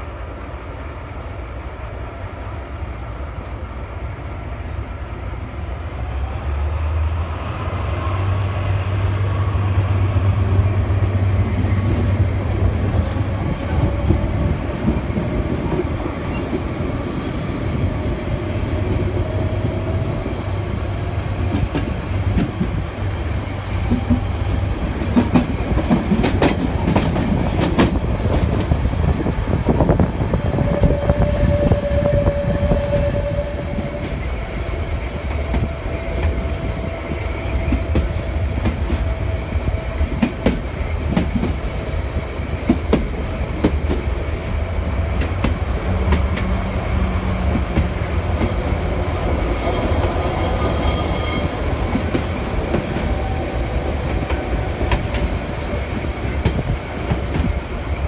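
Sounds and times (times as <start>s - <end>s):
train wheels rumbling on rails: 0.0s - 58.0s
wheels squealing on curve: 49.5s - 51.9s.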